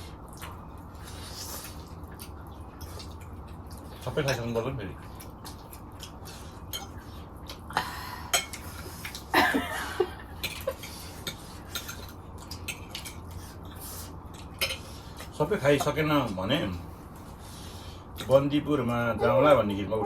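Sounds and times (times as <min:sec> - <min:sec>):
cutlery clinking on plates: 0:10.4 - 0:13.2, 0:14.6 - 0:14.9.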